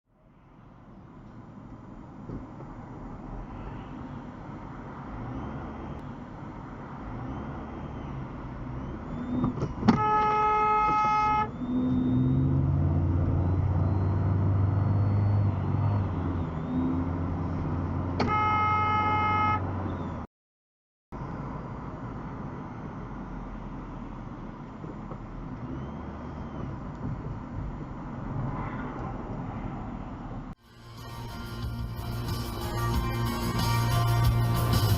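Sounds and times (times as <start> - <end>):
car road noise: 0.1 - 20.3, 21.2 - 34.9
car horn blasts: 9.9 - 11.6, 18.2 - 19.7.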